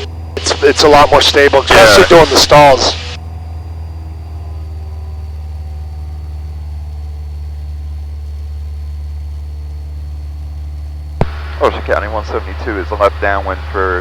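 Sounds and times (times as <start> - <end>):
aircraft engine droning: 0.0 - 14.0.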